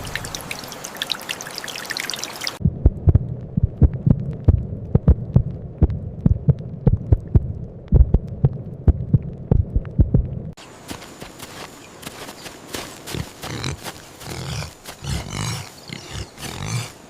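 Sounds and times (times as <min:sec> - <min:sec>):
low steady hum: 0:02.6 - 0:10.6.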